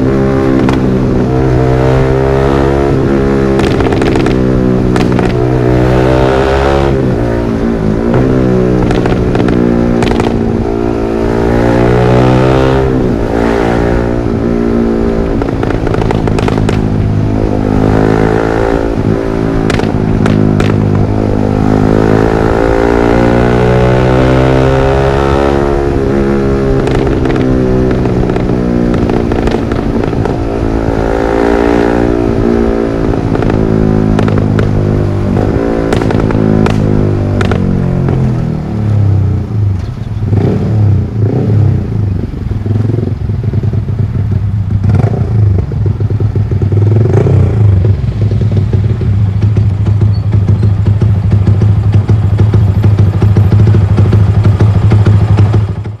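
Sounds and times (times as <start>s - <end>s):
exhaust crackles and pops: 0.0s - 1.4s, 3.4s - 6.0s, 7.8s - 10.8s, 14.9s - 23.3s, 24.6s - 38.5s, 44.8s - 56.0s
motorcycle engine revving: 0.0s - 56.0s.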